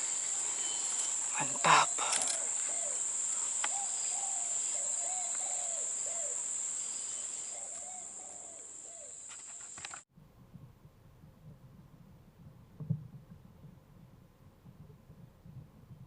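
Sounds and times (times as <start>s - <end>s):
high-pitched insect drone: 0.0s - 10.0s
dove cooing: 1.5s - 6.5s, 7.5s - 9.2s
faint low rumble: 10.1s - 16.0s.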